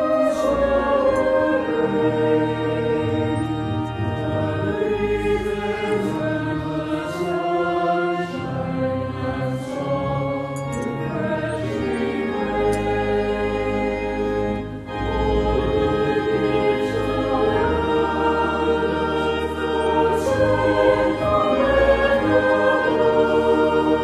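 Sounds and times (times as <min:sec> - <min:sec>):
choir singing chords: 0:00.0 - 0:24.0.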